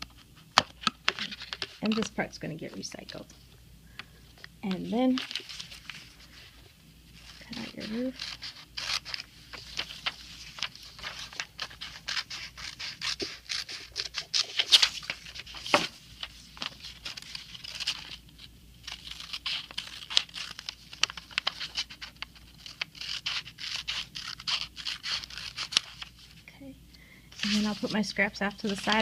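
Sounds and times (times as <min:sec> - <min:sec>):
paper rustling: 0:00.0 - 0:03.2, 0:04.7 - 0:26.4, 0:27.3 - 0:29.0
scissors snipping paper: 0:07.4 - 0:15.9, 0:18.9 - 0:26.1.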